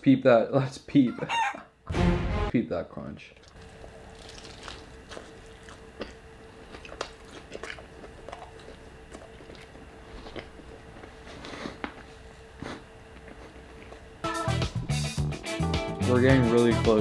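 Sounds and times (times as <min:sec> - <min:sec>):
faint steady hum: 0:02.6 - 0:14.3
crunchy chewing of fried chicken: 0:03.4 - 0:14.2.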